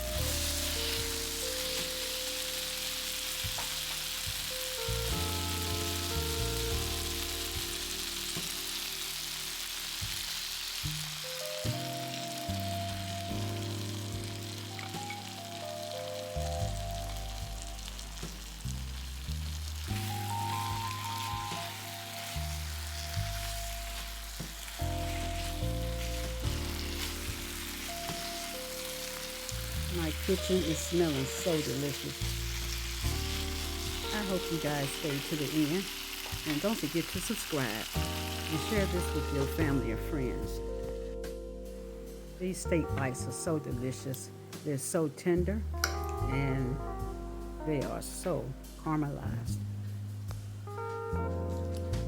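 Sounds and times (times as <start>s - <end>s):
food sizzling in oil: 0.0s - 39.9s
soft background music: 0.0s - 52.0s.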